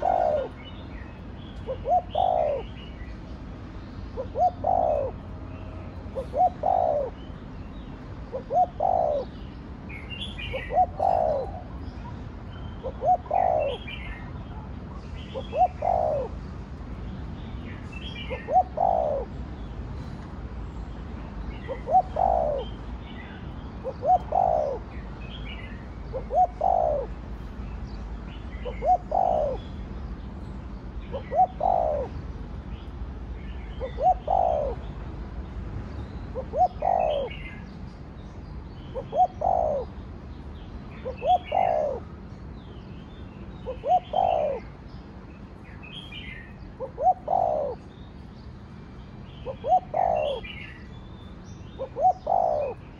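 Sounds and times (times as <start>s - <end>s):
dove cooing: 0.0s - 3.2s, 4.2s - 7.3s, 8.3s - 9.4s, 10.4s - 12.1s, 12.8s - 16.4s, 18.2s - 19.4s, 21.6s - 22.8s, 23.8s - 25.0s, 26.1s - 27.2s, 28.6s - 29.6s, 31.1s - 32.2s, 33.8s - 34.8s, 36.4s - 37.6s, 38.9s - 40.0s, 41.0s - 42.1s, 43.6s - 44.7s, 46.8s - 47.9s, 49.4s - 50.8s, 51.8s - 52.9s.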